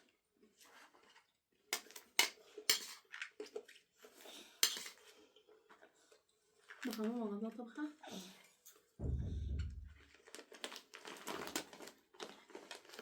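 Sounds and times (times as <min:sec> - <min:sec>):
utensils clinking on dishes: 0:01.8 - 0:03.1, 0:04.6 - 0:05.1.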